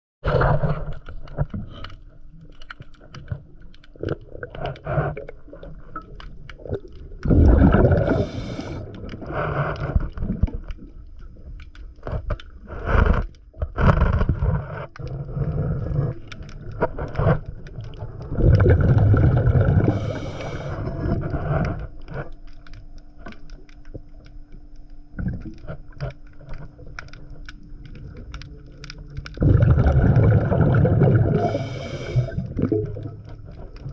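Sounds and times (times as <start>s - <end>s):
faint steady hum: 0.4s - 33.9s
small clicks: 0.9s - 4.8s, 21.4s - 29.4s
exhaled bubbles gurgling: 3.0s - 22.4s, 25.1s - 33.9s
diver breathing through regulator: 7.4s - 10.2s, 18.6s - 21.9s, 29.5s - 33.1s.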